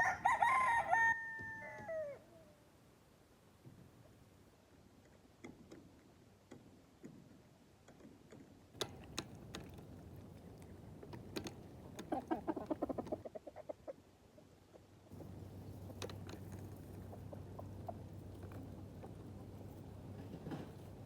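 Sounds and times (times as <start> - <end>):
chickens pecking: 8.8 - 14.0, 14.7 - 21.0
hen clucking: 11.8 - 19.6.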